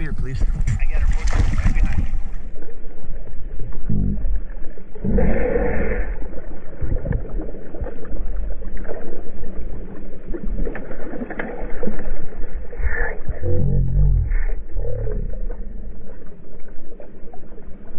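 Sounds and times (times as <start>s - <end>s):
water sloshing and splashing: 0.0s - 17.9s
heavy low rumble: 3.5s - 7.4s, 12.8s - 16.1s
muffled pitched sound: 3.6s - 5.4s, 12.8s - 16.0s.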